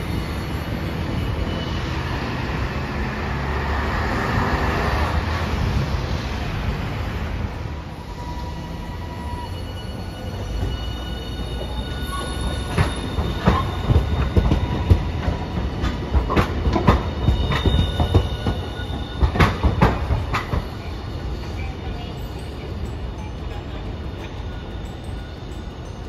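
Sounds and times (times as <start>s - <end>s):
tram rumbling past: 0.0s - 26.0s
faint high wheel squeal: 0.6s - 2.7s, 8.0s - 15.7s, 17.0s - 19.6s.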